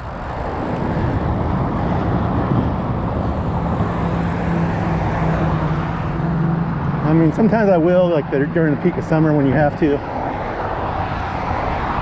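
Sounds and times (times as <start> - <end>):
low engine hum: 0.0 - 12.0
wind on microphone: 0.0 - 12.0.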